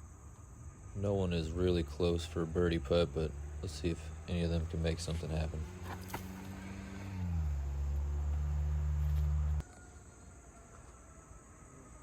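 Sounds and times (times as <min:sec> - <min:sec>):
faint insects chirring: 0:00.0 - 0:12.0
low engine drone: 0:01.0 - 0:09.6.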